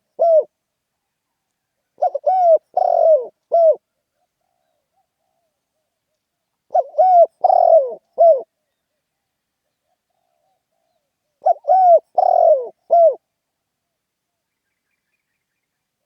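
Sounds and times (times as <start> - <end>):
dove cooing: 0.0 - 0.5, 2.0 - 5.5, 6.7 - 8.5, 9.8 - 13.2.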